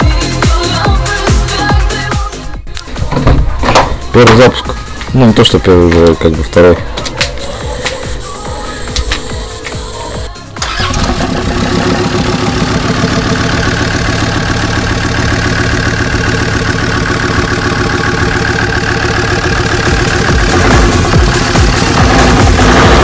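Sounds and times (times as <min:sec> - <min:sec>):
engine starting and idling: 0:09.3 - 0:23.0.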